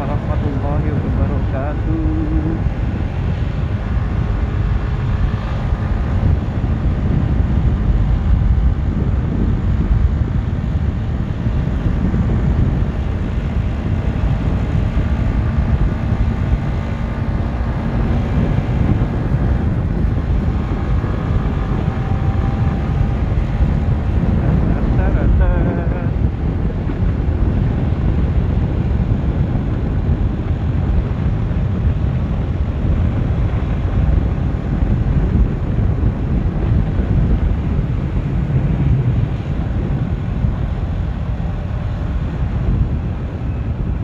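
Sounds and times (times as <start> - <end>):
motorcycle engine steady: 0.0 - 44.0
wind rush on microphone: 0.0 - 44.0.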